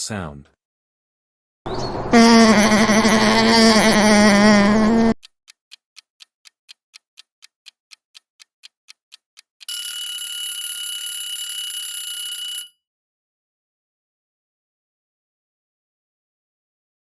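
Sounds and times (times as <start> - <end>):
animal call: 2.0 - 5.1
timer clock ticking: 2.6 - 10.2.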